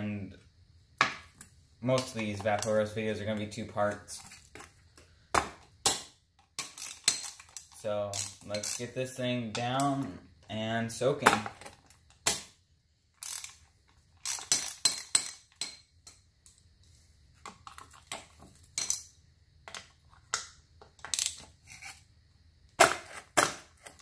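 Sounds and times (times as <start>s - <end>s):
metal parts clinking: 6.6s - 9.0s, 13.2s - 13.6s.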